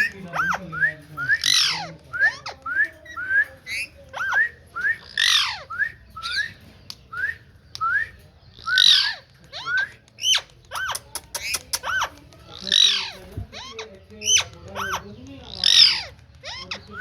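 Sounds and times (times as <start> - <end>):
parrot harsh squawks: 1.4 - 2.6, 3.7 - 6.5, 8.6 - 17.0.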